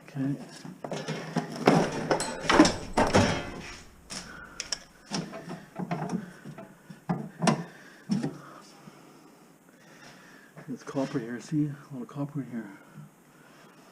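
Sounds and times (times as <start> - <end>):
metal clicks and rattles: 1.7 - 5.4.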